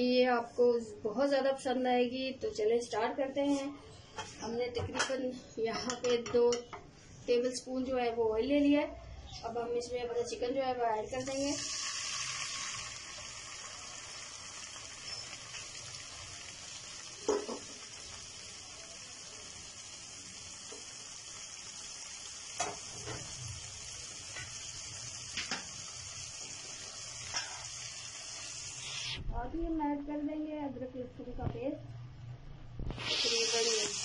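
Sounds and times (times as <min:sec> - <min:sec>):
chicken sizzling in hot oil: 0:11.1 - 0:29.2, 0:32.9 - 0:34.0
oil popping and crackling: 0:11.3 - 0:29.2.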